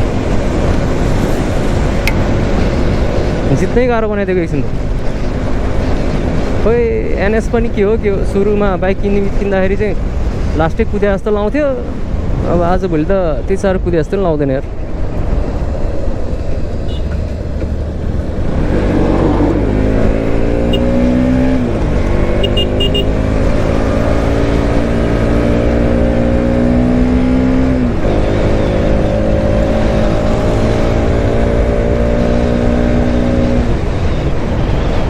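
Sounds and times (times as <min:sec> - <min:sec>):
wind rush: 0:14.7 - 0:27.0
motorcycle engine accelerating: 0:17.2 - 0:33.7.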